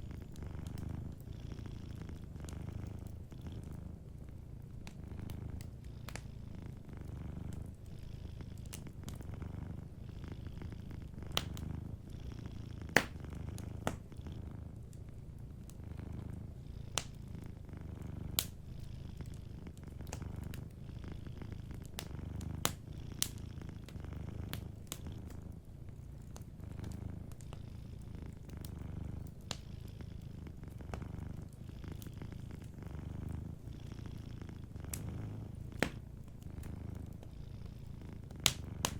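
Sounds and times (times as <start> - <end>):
cat purring: 0.0 - 38.9
wood fire crackling: 0.0 - 38.9.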